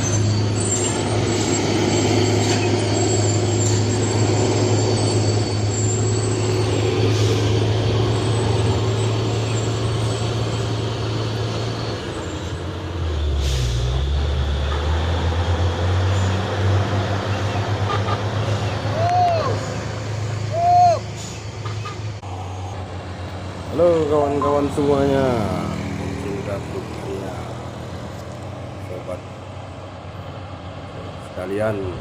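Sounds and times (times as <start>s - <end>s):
diesel truck engine drone: 0.0s - 32.0s
air brakes hiss: 7.0s - 7.6s, 13.3s - 14.0s, 21.0s - 21.5s.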